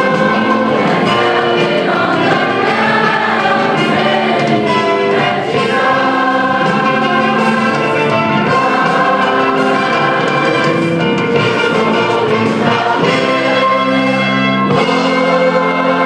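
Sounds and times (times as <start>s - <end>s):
choir singing: 0.0s - 16.0s
instrumental accompaniment: 0.0s - 16.0s.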